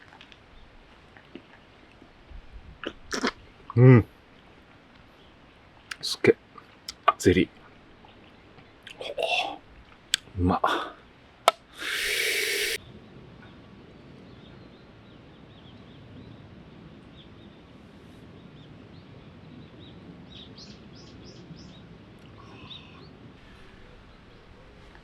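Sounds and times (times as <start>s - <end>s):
low outdoor ambience: 0.0s - 25.0s
small birds chirping: 11.8s - 12.8s.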